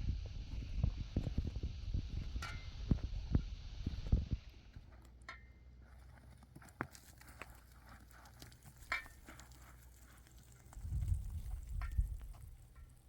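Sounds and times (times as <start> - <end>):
low rumbling: 0.0 - 4.9, 10.6 - 13.0
faint low hum: 0.0 - 13.0.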